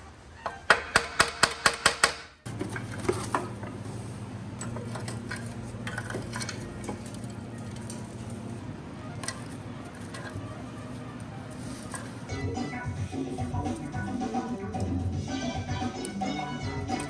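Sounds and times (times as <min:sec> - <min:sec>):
hammer striking metal: 0:00.7 - 0:02.4
steady low hum: 0:02.5 - 0:17.0.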